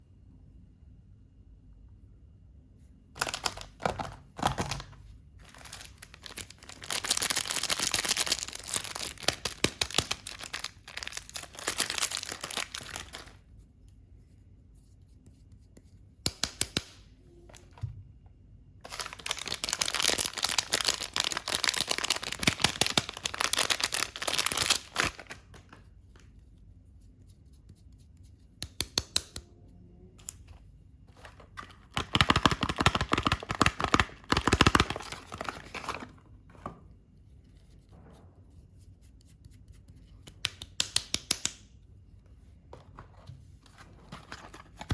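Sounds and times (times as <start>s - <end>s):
wrappers tearing and crinkling: 3.2s - 13.4s, 18.8s - 25.5s, 31.6s - 36.1s.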